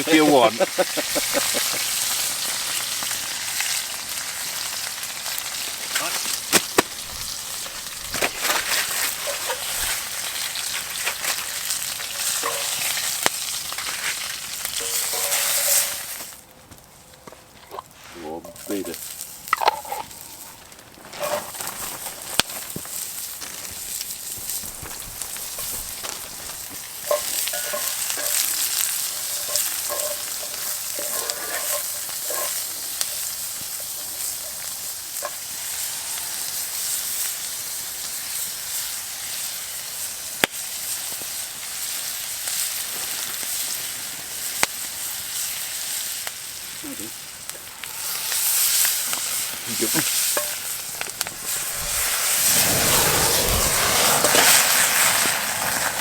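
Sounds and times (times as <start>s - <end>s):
food sizzling in oil: 0.0s - 16.4s, 17.8s - 56.0s
sharp pops: 6.0s - 8.8s.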